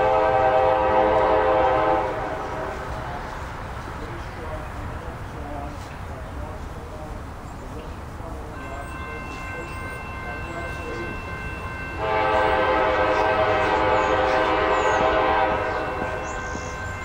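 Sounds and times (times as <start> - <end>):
locomotive air horn: 0.0 - 2.9, 8.6 - 17.0
passing train rumble: 0.0 - 17.0.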